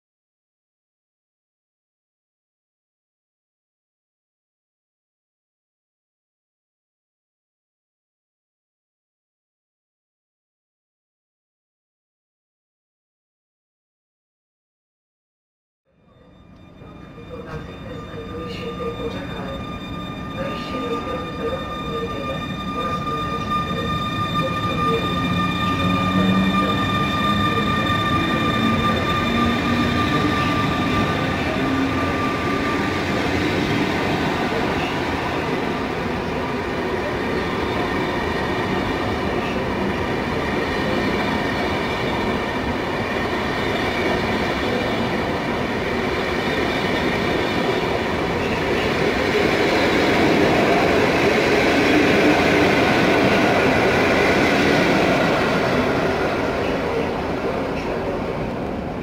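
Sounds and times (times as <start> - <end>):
electric locomotive whine: 15.9 - 59.0.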